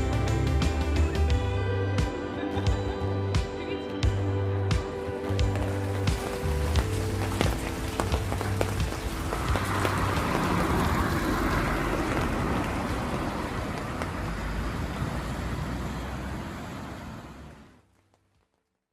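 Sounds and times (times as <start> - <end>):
tyres hissing on wet road: 5.2 - 17.7.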